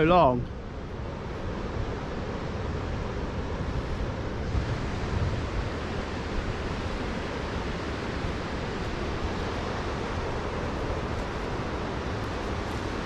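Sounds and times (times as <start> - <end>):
surf washing: 0.0 - 13.0
wind buffeting microphone: 0.0 - 13.0.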